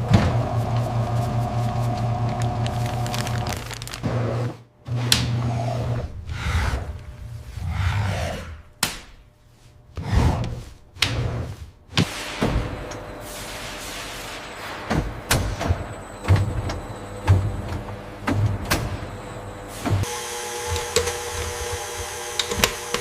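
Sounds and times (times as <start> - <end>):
machinery humming: 0.0 - 4.2, 11.9 - 23.0.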